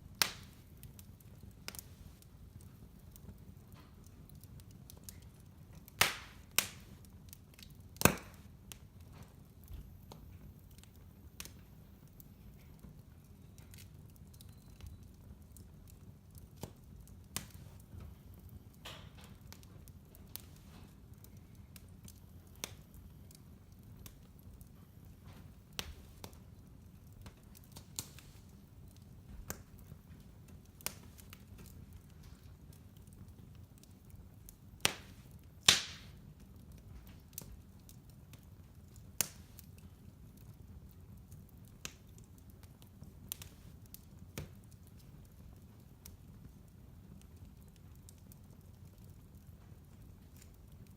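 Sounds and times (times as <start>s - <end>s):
fire crackling and popping: 0.0s - 50.9s
fire rumbling: 0.0s - 50.9s.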